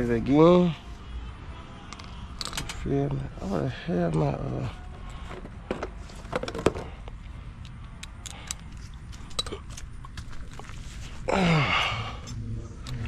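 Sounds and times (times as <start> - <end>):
low steady hum: 0.0 - 13.0
clinks of tools and metal parts: 1.9 - 2.8, 7.6 - 10.7.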